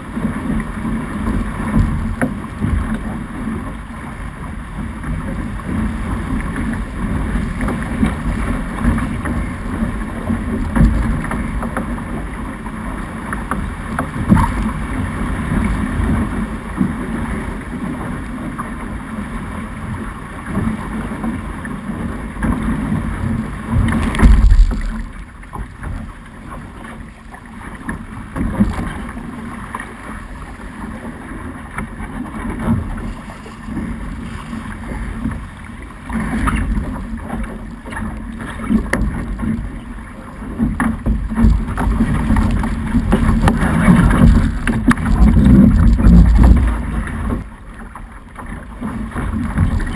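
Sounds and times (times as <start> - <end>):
water rushing past hull: 0.0 - 49.9
wind buffeting microphone: 41.1 - 47.5.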